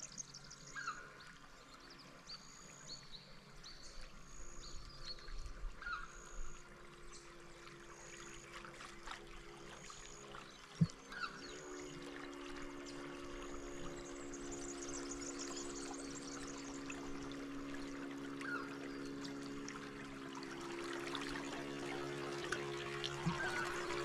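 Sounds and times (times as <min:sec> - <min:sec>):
faint steady hum: 0:00.0 - 0:24.0
lower rising call: 0:21.9 - 0:24.0.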